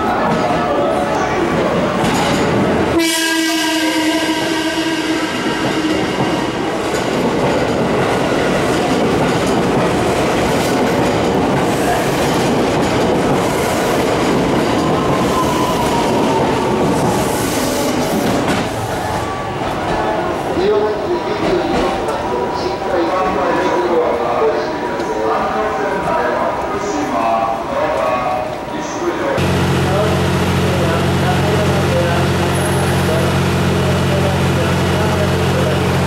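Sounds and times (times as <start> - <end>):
train wheels clattering on rails: 1.5 - 3.0, 4.2 - 20.2
train horn blast: 3.0 - 6.6.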